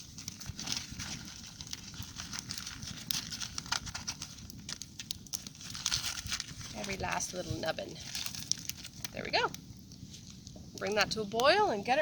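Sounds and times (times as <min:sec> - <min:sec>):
campfire crackling: 0:00.0 - 0:12.0.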